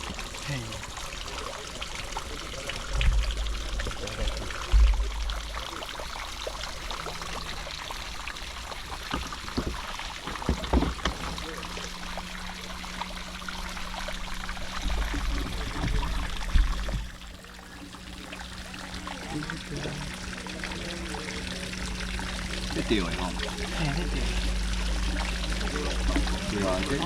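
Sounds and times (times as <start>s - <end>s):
steady low hum: 0.0s - 27.0s
water running and pouring: 0.0s - 27.0s
short knocks: 9.0s - 11.7s.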